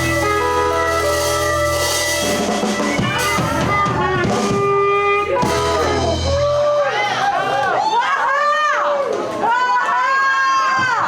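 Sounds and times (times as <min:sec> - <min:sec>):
lead line of bending notes: 0:00.0 - 0:06.5
blues band playing: 0:00.0 - 0:07.5.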